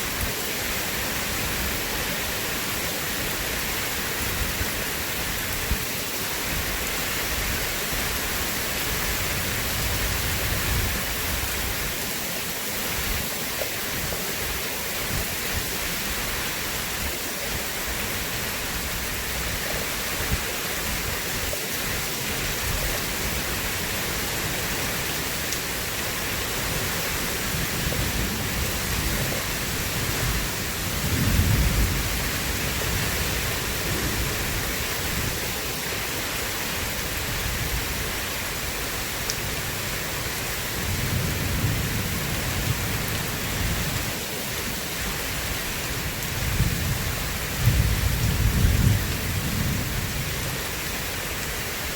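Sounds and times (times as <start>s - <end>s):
steady rain hiss: 0.0s - 51.9s
thunder rumbling: 26.8s - 35.4s, 46.4s - 50.4s.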